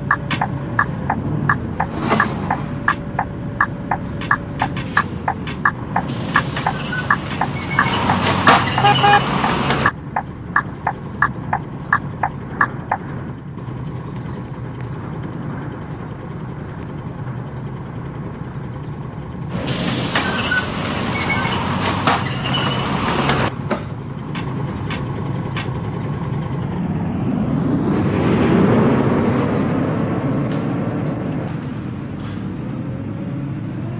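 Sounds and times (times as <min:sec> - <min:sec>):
evenly spaced clicking: 0:00.0 - 0:23.5
rushes of air: 0:00.0 - 0:31.9
bus engine running: 0:00.0 - 0:33.9.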